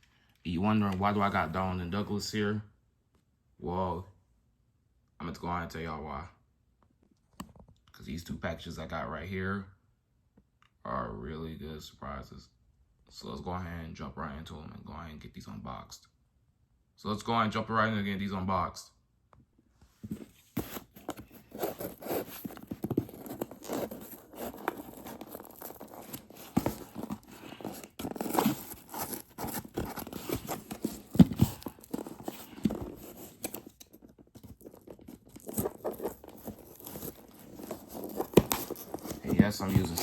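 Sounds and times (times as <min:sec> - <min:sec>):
tape tearing: 0:20.5 - 0:40.0
handling clicks and knocks: 0:20.6 - 0:40.0
packaging crinkling: 0:20.6 - 0:40.0
scissors cutting packaging: 0:20.6 - 0:40.0.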